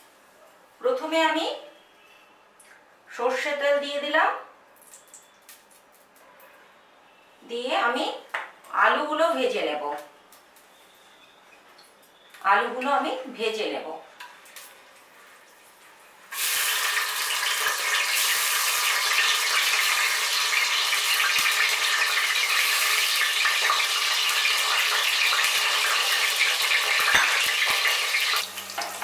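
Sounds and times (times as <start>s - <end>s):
potatoes sizzling in hot oil: 15.1s - 29.0s.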